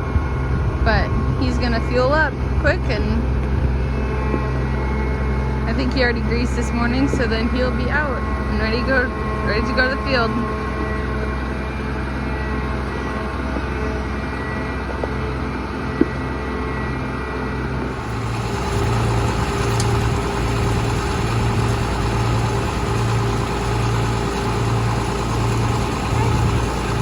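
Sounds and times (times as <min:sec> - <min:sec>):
low pulsing throb: 0:00.0 - 0:14.9, 0:17.8 - 0:27.0
tractor engine idling: 0:05.3 - 0:10.8, 0:17.8 - 0:27.0.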